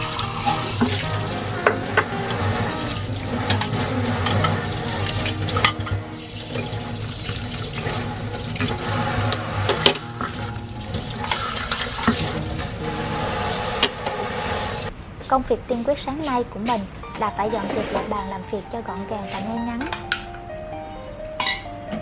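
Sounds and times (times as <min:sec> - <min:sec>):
tap water running into sink: 0:00.0 - 0:14.9
crockery clinking: 0:03.4 - 0:06.8, 0:21.4 - 0:21.7.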